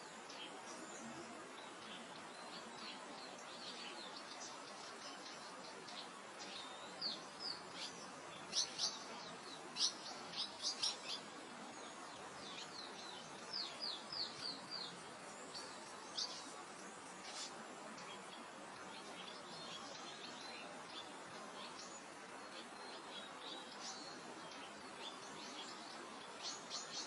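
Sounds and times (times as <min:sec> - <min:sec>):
soft wind: 0:00.0 - 0:27.0
songbirds chirping: 0:00.0 - 0:27.0.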